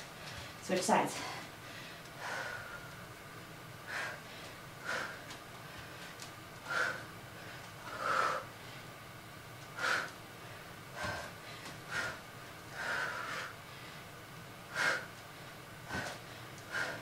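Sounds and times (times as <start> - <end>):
woman breathing hard: 0.2 - 3.1, 3.8 - 9.0, 9.7 - 17.0.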